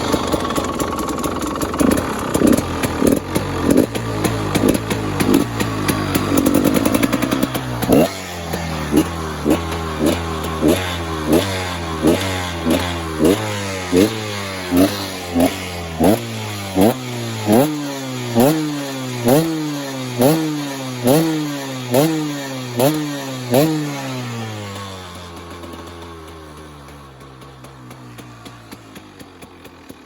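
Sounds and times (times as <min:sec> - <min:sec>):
two-stroke engine revving: 0:00.0 - 0:30.0.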